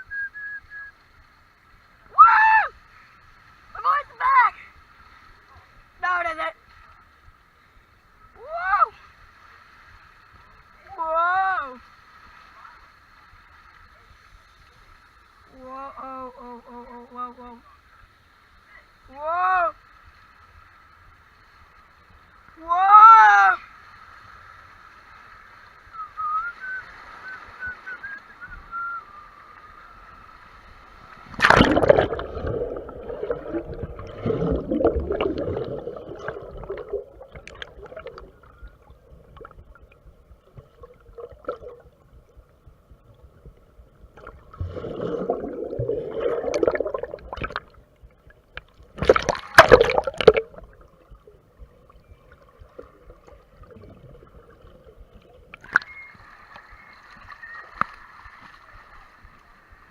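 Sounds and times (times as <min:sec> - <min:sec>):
water splashing around a raft: 0:22.6 - 0:39.5, 0:48.9 - 0:54.0
churning water: 0:31.0 - 0:42.0, 0:44.1 - 0:59.9
loud splash: 0:31.3 - 0:38.1, 0:44.5 - 0:47.6, 0:49.0 - 0:50.6.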